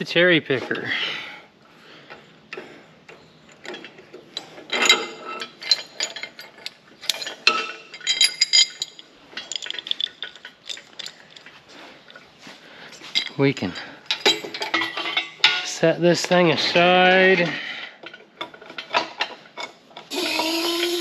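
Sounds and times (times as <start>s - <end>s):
metal parts clanking: 3.5s - 12.2s, 13.1s - 21.0s.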